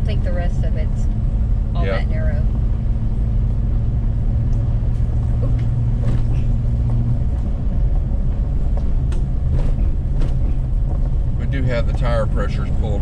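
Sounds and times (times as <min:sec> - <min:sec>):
engine and tyre drone: 0:00.0 - 0:13.0.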